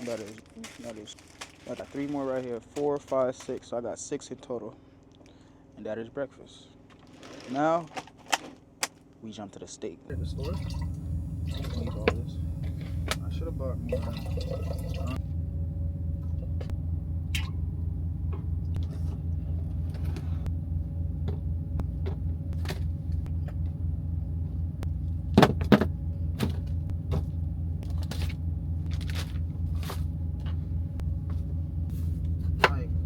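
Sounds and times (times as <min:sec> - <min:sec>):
truck engine rumble: 0:10.1 - 0:33.0.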